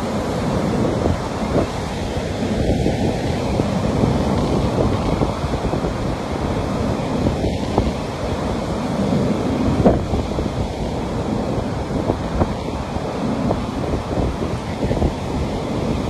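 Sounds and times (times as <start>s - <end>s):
waves washing onto beach: 0.0s - 16.0s
wind buffeting microphone: 0.0s - 16.0s.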